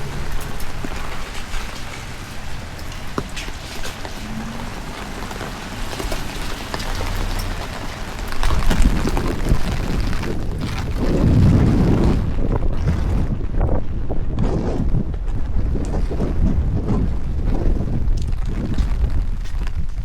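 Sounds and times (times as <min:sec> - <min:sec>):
heavy rain falling: 0:00.0 - 0:14.2
wind buffeting microphone: 0:00.0 - 0:20.0.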